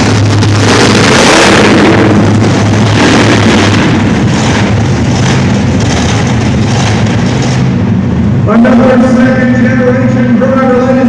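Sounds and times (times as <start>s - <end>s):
monster truck engine running loud: 0.0s - 11.0s.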